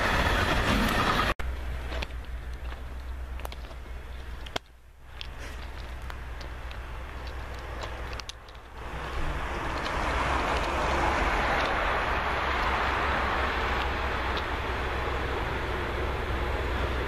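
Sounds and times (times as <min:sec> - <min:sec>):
freight train wheel and rail noise: 0:00.0 - 0:17.0.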